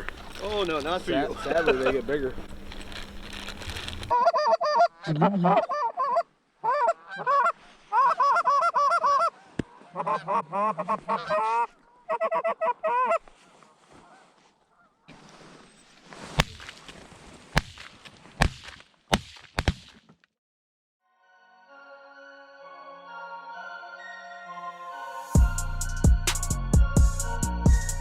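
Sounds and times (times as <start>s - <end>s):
geese honking: 0.0s - 5.1s, 6.0s - 13.2s.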